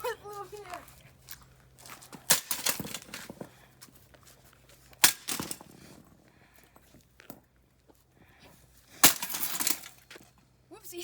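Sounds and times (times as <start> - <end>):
sledgehammer striking bicycle frame: 2.2 - 3.4, 5.0 - 5.7, 9.0 - 10.0
small metal clatters: 2.3 - 3.4, 9.0 - 10.3.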